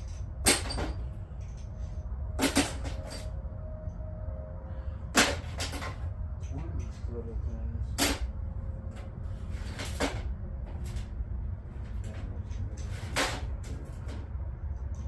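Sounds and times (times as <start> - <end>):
hand tools clacking and knocking: 0.0 - 1.8
steady low hum: 0.0 - 15.0.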